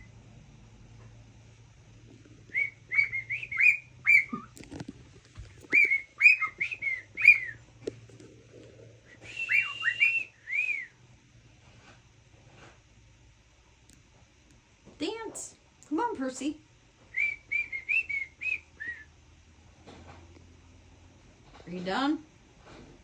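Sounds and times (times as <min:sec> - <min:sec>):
cockatiel whistling chirpy notes: 0:02.6 - 0:04.5, 0:05.7 - 0:07.6, 0:09.3 - 0:10.3.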